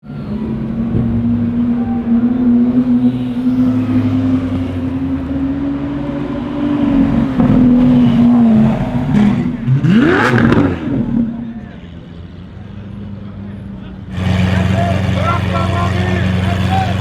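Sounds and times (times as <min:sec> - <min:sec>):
sports car engine running: 0:14.1 - 0:17.0.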